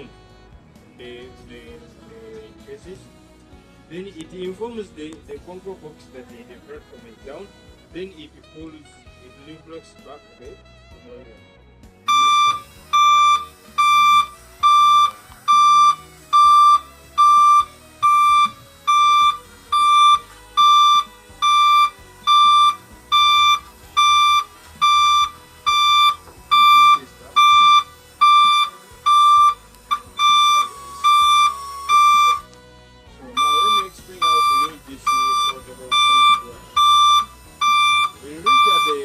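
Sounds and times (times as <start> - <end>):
electronic warning beeps: 12.1 - 32.5, 33.3 - 39.0.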